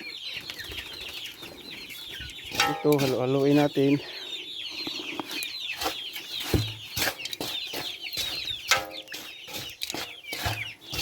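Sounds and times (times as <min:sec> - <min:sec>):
chickens clucking: 0:00.0 - 0:11.0
chicks peeping: 0:00.0 - 0:11.0
feed being stirred in a basin: 0:02.4 - 0:04.2, 0:05.3 - 0:11.0.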